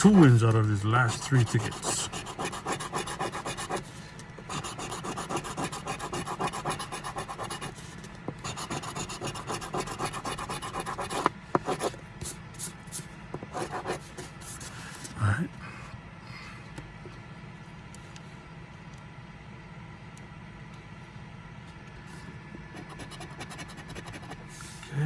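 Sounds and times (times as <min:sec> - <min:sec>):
scratching lottery ticket: 0:00.0 - 0:15.0, 0:22.7 - 0:24.8.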